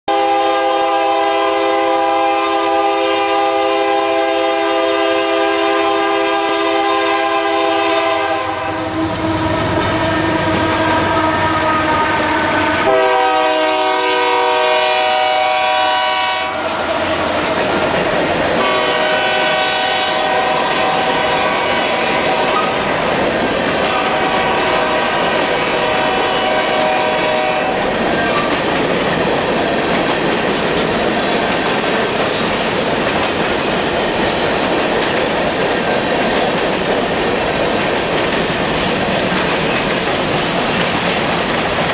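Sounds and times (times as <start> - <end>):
train horn blowing a long chord: 0.1 - 17.4, 18.6 - 22.8, 23.8 - 28.0
train wheels clattering over rail joints: 16.6 - 19.3, 27.8 - 41.9.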